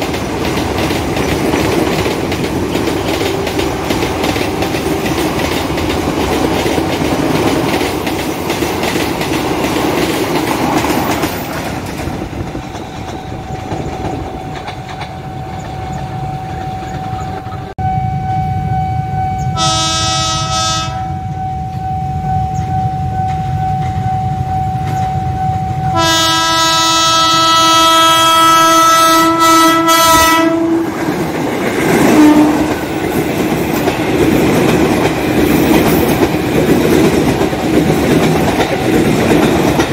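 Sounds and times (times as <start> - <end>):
coach wheels clickety-clack: 0.0 - 17.7, 22.5 - 26.6, 27.4 - 39.9
electric train passing: 0.0 - 39.9
train horn: 17.2 - 31.0, 32.0 - 32.9.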